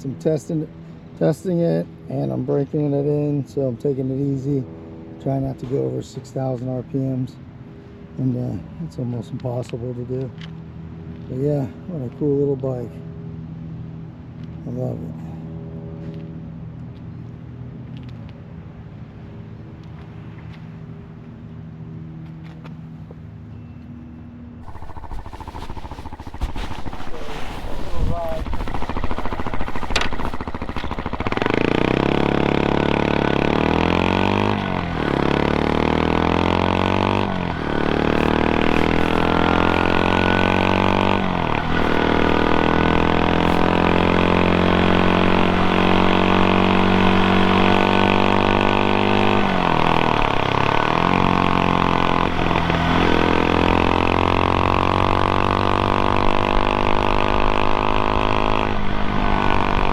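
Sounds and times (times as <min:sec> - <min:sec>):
motorcycle engine pulling through gears: 0:24.6 - 0:59.9.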